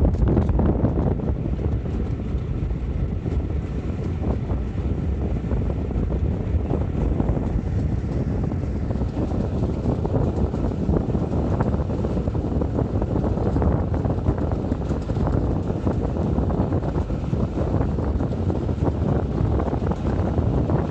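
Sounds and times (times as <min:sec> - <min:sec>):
steam locomotive rumble: 0:00.0 - 0:20.9
wind buffeting microphone: 0:00.0 - 0:20.9.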